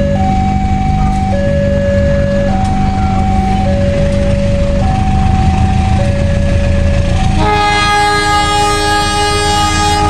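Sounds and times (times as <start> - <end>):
low rumble: 0.0 - 8.2
two-note electronic tone: 0.0 - 10.0
diesel locomotive horn chord: 6.9 - 10.0.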